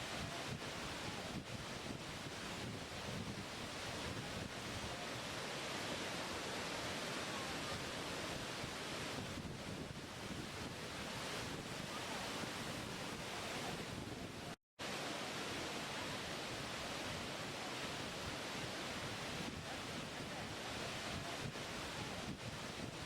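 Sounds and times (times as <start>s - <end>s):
waterfall rushing: 3.6s - 9.2s, 10.6s - 13.8s, 14.4s - 23.0s.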